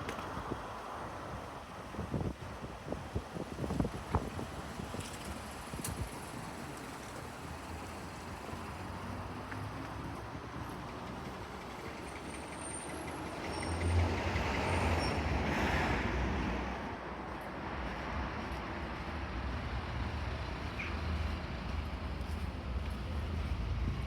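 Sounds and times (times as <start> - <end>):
steady low traffic rumble: 15.6 - 24.0.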